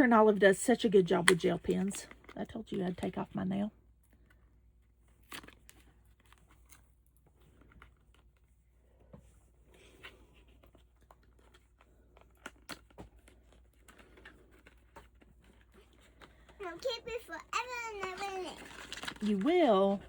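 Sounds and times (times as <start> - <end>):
packaging rustling and clicking: 9.9 - 20.0.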